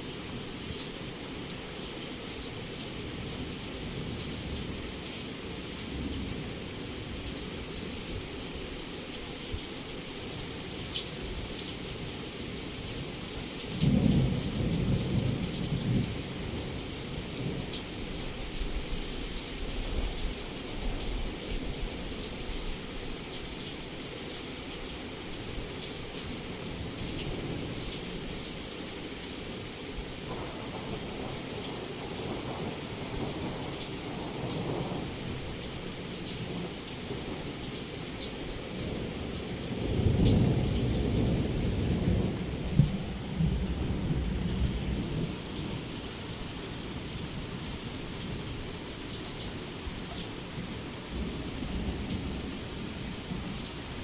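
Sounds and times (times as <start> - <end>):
heavy rain: 0.0 - 54.0
thunder rumbling: 39.8 - 45.6.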